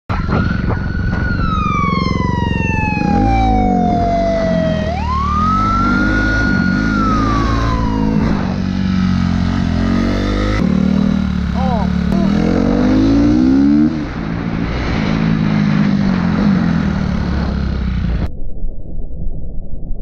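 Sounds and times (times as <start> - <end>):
police siren wailing: 0.1 - 10.6
engine running and revving: 0.1 - 18.3.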